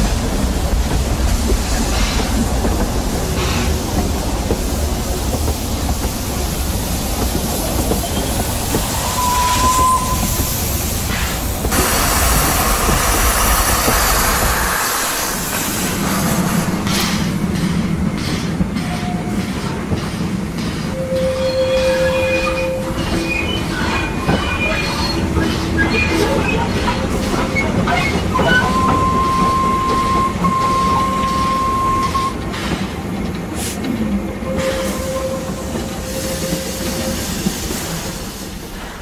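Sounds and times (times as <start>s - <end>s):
train wagons rumbling and clanking: 0.0s - 39.0s
train wheels squealing: 7.7s - 16.4s, 20.8s - 32.4s, 34.4s - 38.6s.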